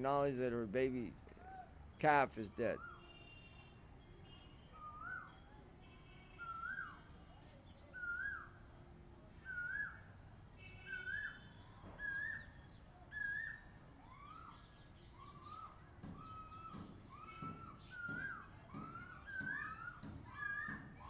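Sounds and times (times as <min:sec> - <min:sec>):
high bird chirps: 0:04.7 - 0:07.1, 0:07.7 - 0:08.6, 0:10.8 - 0:21.0
cuckoo calling rising whistled notes: 0:04.8 - 0:05.5, 0:06.4 - 0:07.1, 0:07.9 - 0:08.6, 0:09.4 - 0:10.1, 0:10.8 - 0:21.0.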